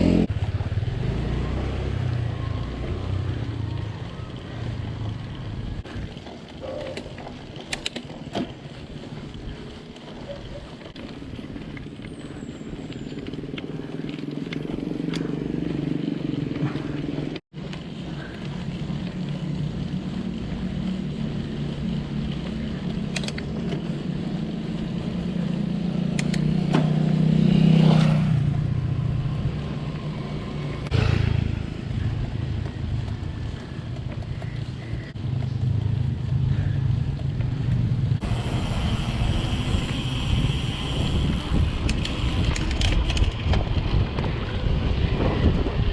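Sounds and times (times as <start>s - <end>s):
vehicle engine passing by: 0.0s - 5.4s, 24.0s - 33.8s
steady low rumble: 30.8s - 45.9s.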